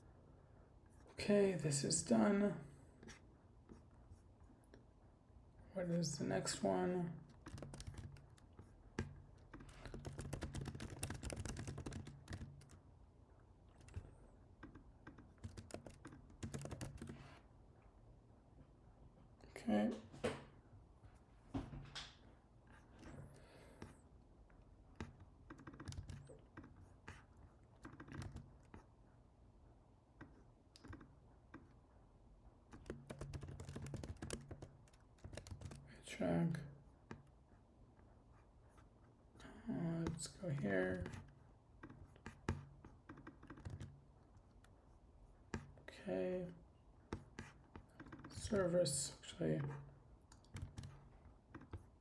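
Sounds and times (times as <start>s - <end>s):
computer keyboard typing: 7.2s - 12.8s, 13.7s - 17.4s, 25.0s - 28.8s, 30.8s - 31.6s, 32.7s - 35.9s, 40.0s - 44.7s, 47.2s - 48.7s, 49.8s - 51.9s.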